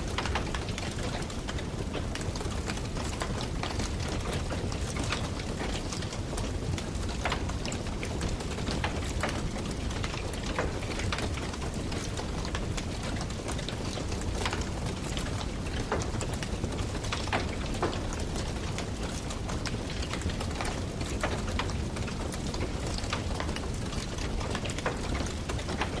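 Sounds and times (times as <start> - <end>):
log fire crackling: 0.0 - 26.0.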